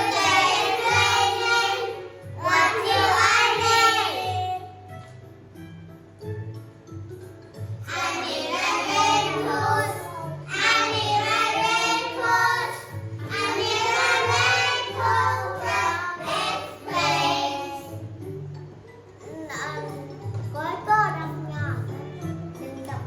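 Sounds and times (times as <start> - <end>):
children singing together: 0.0 - 4.8, 7.8 - 18.1.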